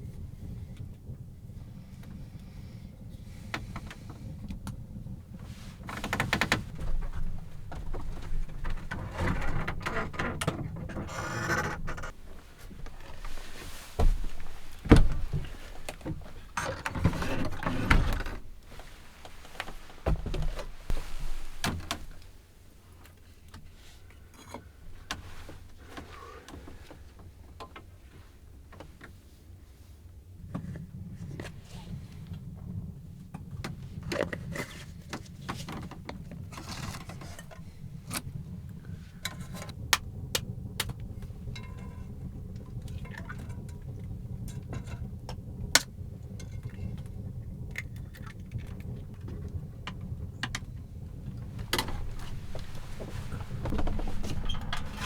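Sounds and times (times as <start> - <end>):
scraping and rustling of handling: 5.4 - 27.2, 33.8 - 39.8, 50.3 - 55.0
low rumble: 37.6 - 55.0.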